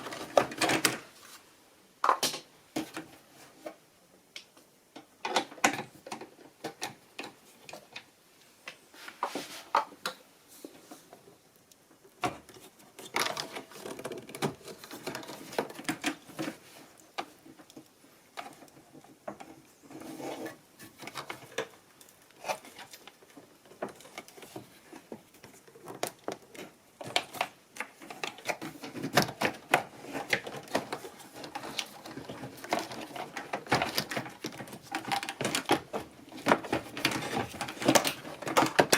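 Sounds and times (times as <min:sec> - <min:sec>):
plastic and metal parts rattling: 0:00.0 - 0:01.1, 0:12.2 - 0:21.8, 0:22.4 - 0:38.9.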